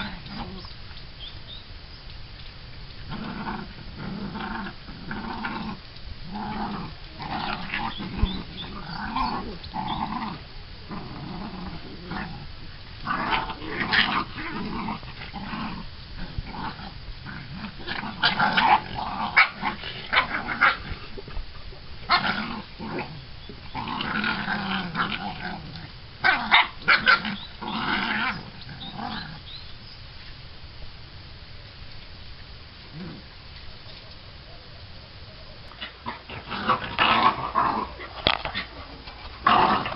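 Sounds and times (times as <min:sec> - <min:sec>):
puppies growling: 0:00.0 - 0:00.7, 0:03.0 - 0:21.4, 0:22.0 - 0:29.5, 0:32.9 - 0:33.3, 0:35.6 - 0:39.9.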